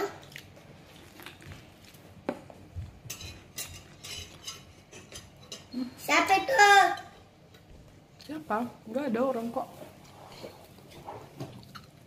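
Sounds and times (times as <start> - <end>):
chewing corn on the cob: 0.1 - 2.0.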